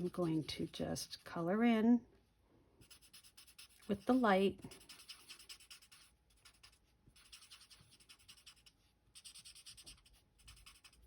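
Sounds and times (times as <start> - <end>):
marker scratching on cardstock: 0.0 - 1.2, 2.8 - 11.0.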